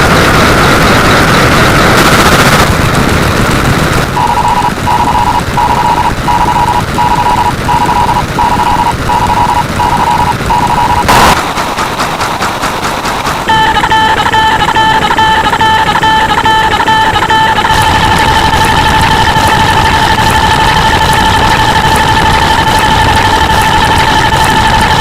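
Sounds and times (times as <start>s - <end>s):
sudden loud burst: 0.0s - 25.0s
electronic alarm beeps: 4.2s - 11.4s, 13.5s - 25.0s.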